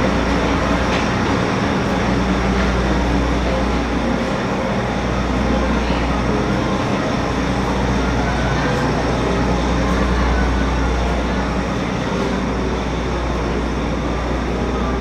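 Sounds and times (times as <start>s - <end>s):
diesel engines droning: 0.0s - 15.0s.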